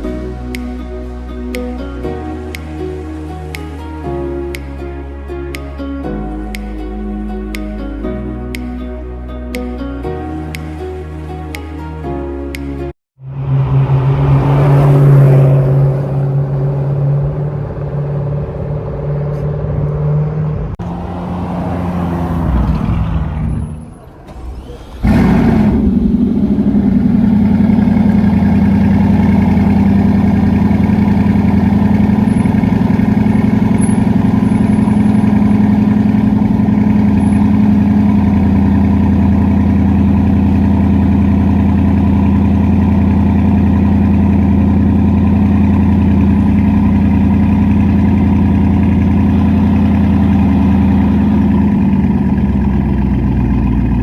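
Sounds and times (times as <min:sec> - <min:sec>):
car engine droning: 0:13.2 - 0:54.0
loud engine drone: 0:13.2 - 0:54.0.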